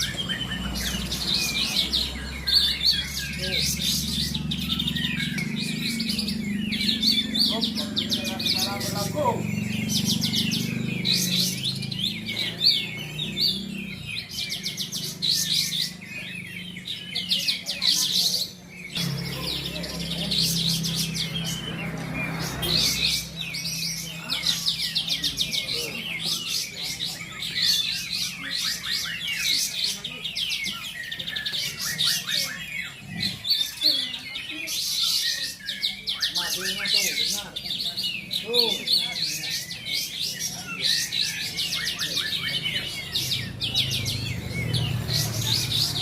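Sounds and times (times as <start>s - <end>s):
songbirds chirping and trilling: 0.0s - 46.0s.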